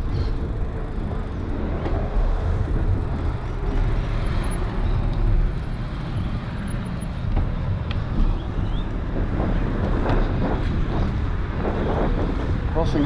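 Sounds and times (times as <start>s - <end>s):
road traffic: 0.0s - 13.0s
wind rumble on microphone: 0.0s - 13.0s.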